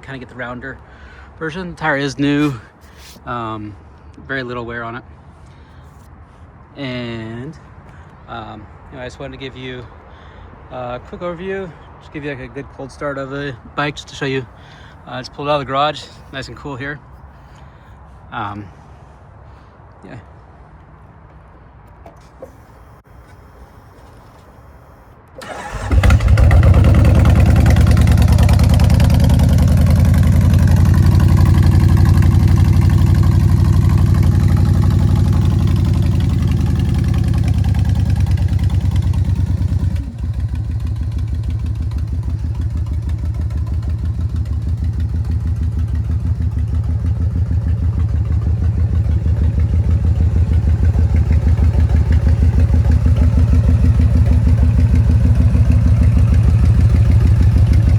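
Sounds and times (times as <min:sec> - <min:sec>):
motorcycle engine starting and idling: 0:22.0 - 0:57.9.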